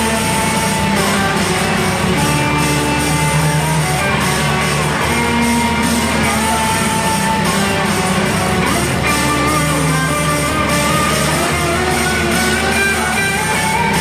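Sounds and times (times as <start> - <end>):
live band music with guitar: 0.0 - 14.0.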